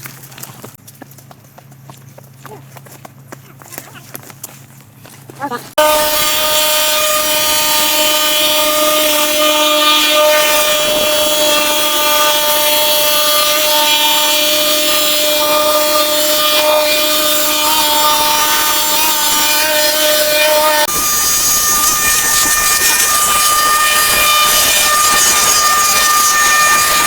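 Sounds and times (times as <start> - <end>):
power tool whining: 5.8 - 27.0.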